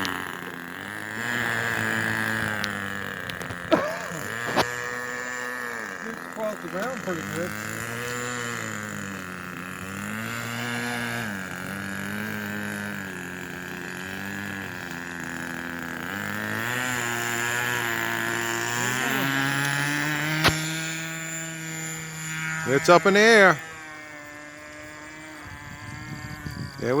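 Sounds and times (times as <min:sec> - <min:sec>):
model airplane engine running: 0:00.0 - 0:27.0
sharp click: 0:20.4 - 0:20.7.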